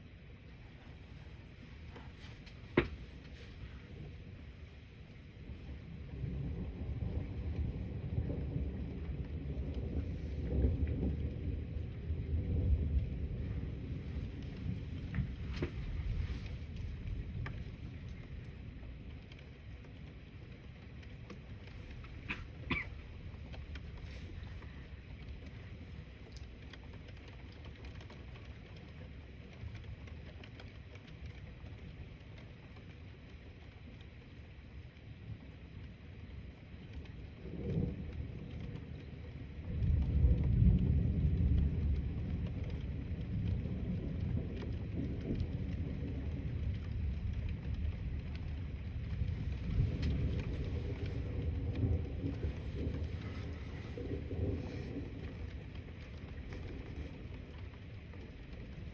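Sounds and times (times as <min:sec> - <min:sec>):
thunder rumbling: 0:00.0 - 0:58.9
light ticks: 0:13.9 - 0:36.0.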